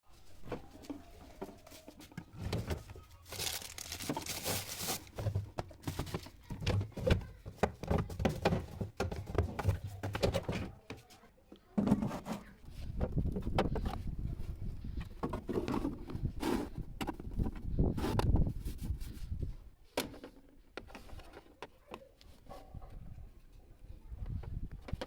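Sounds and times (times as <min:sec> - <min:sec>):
crinkling rustle: 0:00.1 - 0:07.2.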